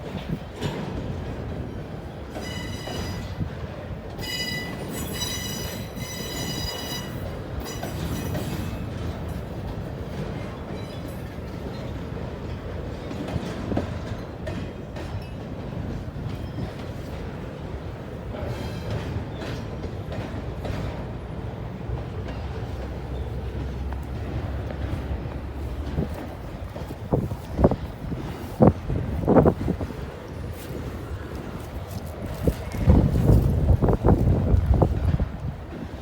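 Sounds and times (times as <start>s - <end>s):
freight train rumbling on rails: 0.0s - 36.0s
train wheel clacks: 0.0s - 36.0s
high wheel squeal: 4.2s - 8.6s.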